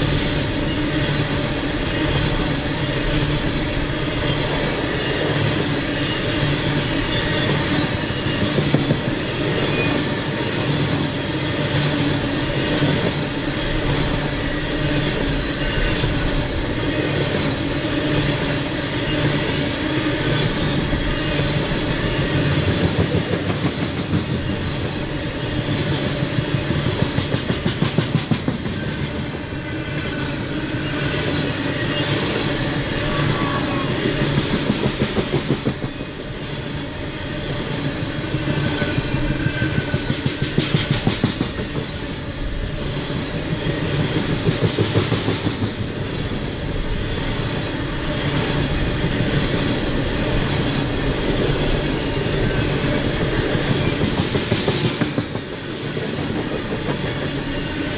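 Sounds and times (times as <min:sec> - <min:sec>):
steady train rumble: 0:00.0 - 0:57.9
train wheels clicking over rail joints: 0:20.5 - 0:29.6, 0:34.2 - 0:36.2, 0:37.7 - 0:42.3, 0:43.5 - 0:46.0, 0:47.9 - 0:57.5.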